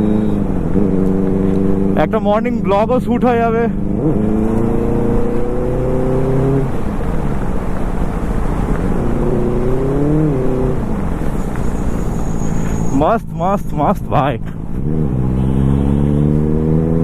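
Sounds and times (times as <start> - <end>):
motorcycle engine shifting gears: 0.0 - 17.0
wind and road rush: 0.0 - 17.0.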